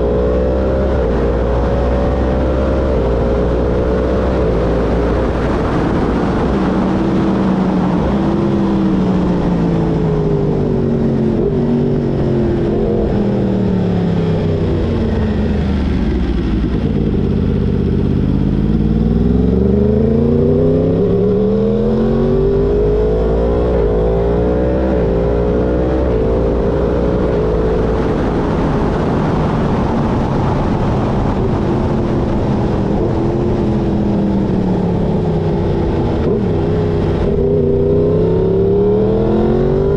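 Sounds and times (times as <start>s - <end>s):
wind rush: 0.0s - 39.9s
motorcycle engine running: 4.4s - 22.0s.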